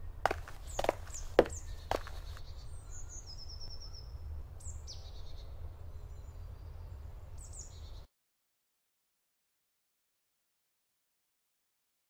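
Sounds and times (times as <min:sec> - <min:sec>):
songbirds calling: 0:00.0 - 0:08.1.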